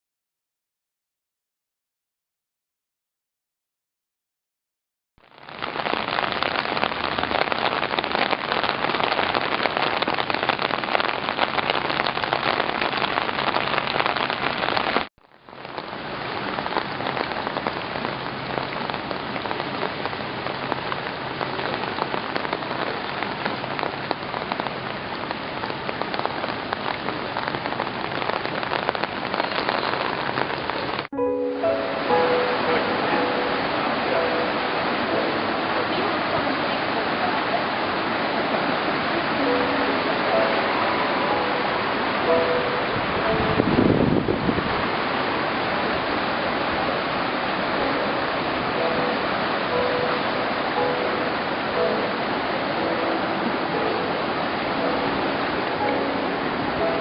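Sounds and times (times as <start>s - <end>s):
rain pouring on hard surfaces: 5.2s - 57.0s.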